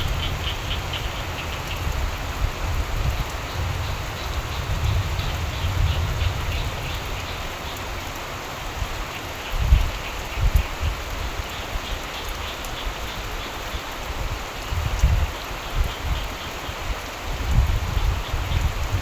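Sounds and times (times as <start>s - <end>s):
frogs calling: 0.0s - 2.0s, 3.4s - 8.0s
rain falling: 0.0s - 19.0s.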